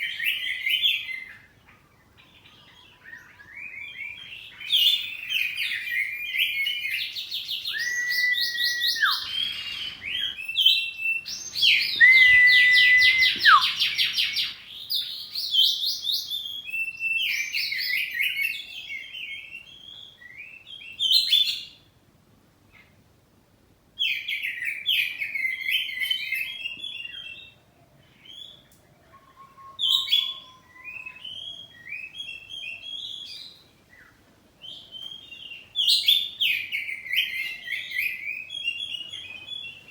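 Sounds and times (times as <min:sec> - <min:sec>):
bird singing whistles and trills: 0:02.7 - 0:21.7, 0:29.3 - 0:39.9.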